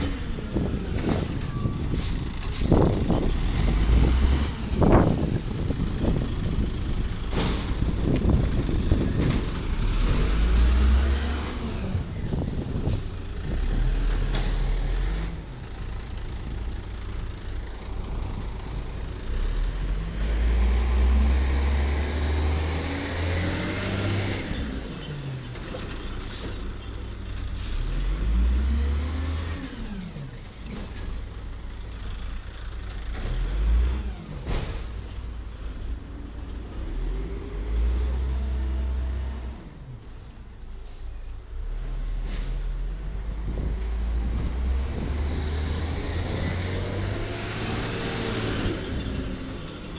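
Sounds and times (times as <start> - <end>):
diesel truck engine revving: 0.0 - 49.9
air brake hiss: 27.5 - 28.0.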